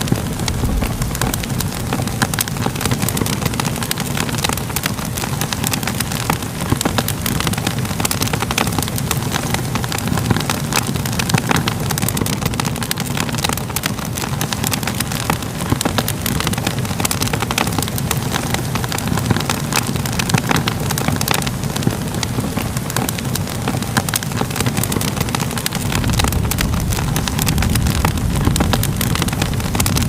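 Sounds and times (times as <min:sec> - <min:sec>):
fire crackles and pops: 0:00.0 - 0:30.0
low rumble of burning: 0:00.0 - 0:30.0.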